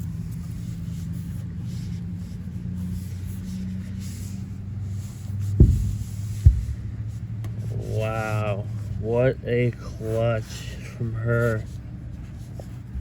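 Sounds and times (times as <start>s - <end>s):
low mechanical hum: 0.0s - 13.0s
dull low thumps: 5.4s - 7.4s.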